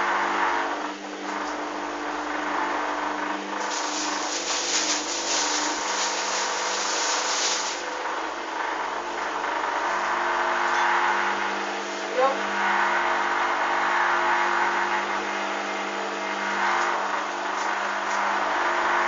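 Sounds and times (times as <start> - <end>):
washing machine motor hum: 0.0 - 19.0
washing machine hiss: 3.5 - 8.2.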